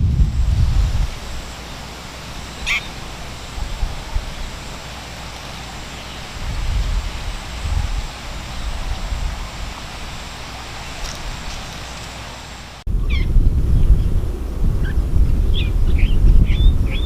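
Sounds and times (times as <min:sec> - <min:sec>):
low rumble: 0:00.0 - 0:01.4, 0:12.9 - 0:17.0.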